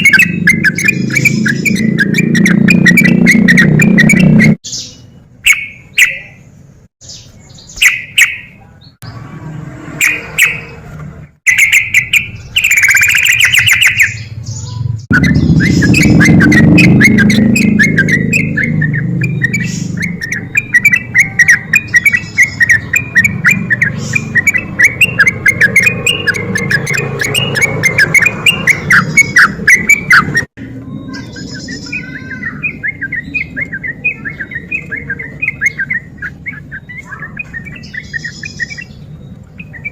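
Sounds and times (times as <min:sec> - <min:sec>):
bird singing and chattering: 0:00.0 - 0:09.2, 0:10.0 - 0:39.9.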